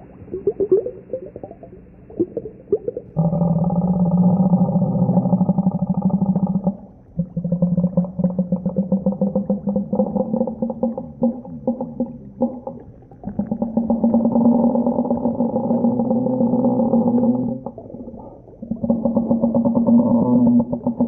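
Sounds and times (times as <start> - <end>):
low pulsing underwater moan: 0.0 - 21.0.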